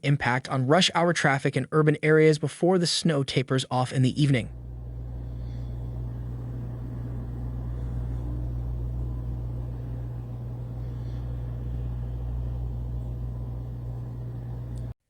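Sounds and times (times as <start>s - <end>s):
vehicle low rumble: 4.5s - 15.0s.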